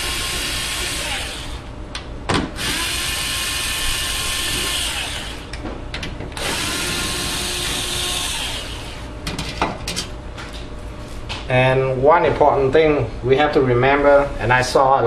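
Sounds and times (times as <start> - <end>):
cordless drill running: 0.0 - 1.7, 2.6 - 5.5, 6.4 - 9.1.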